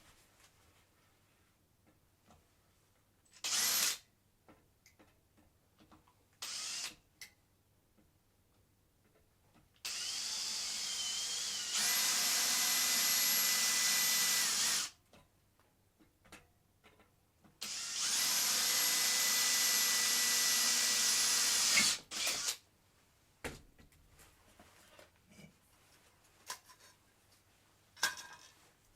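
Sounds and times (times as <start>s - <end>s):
electric drill whining: 3.4s - 4.0s, 6.4s - 7.0s, 9.8s - 15.0s, 17.6s - 22.6s.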